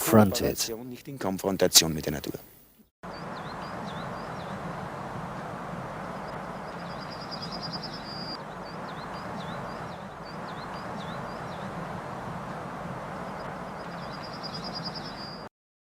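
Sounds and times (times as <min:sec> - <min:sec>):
steady rushing ambient noise: 0:03.1 - 0:15.2
songbird trilling and whistling: 0:06.7 - 0:11.7, 0:13.8 - 0:15.5.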